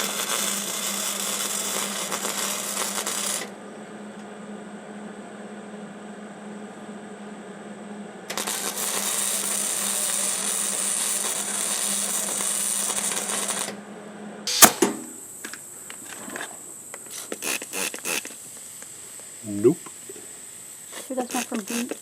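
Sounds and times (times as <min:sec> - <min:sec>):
welder arc crackling sizzle: 0:00.0 - 0:05.6, 0:06.4 - 0:22.0
loud sharp knock: 0:14.5 - 0:15.2.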